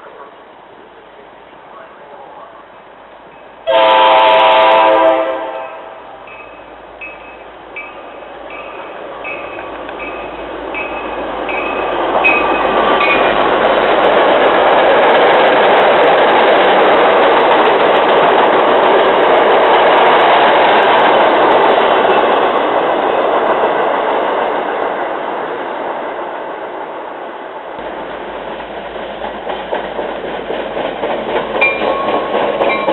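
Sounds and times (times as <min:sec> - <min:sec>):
train wheel and rail noise: 0:00.0 - 0:32.9
bell ringing: 0:05.6 - 0:13.3, 0:31.6 - 0:32.9.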